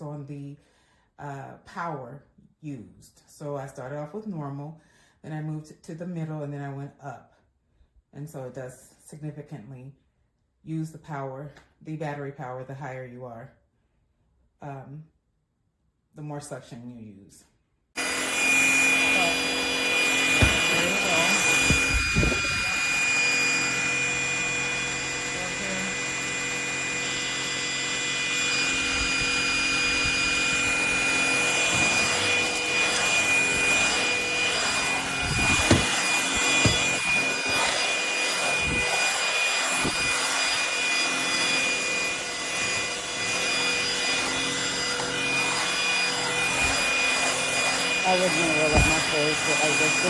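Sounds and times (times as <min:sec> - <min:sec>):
vacuum knocking on floor: 0:18.0 - 0:23.7, 0:28.5 - 0:40.2, 0:42.5 - 0:50.0
stick vacuum motor whine: 0:18.0 - 0:50.0.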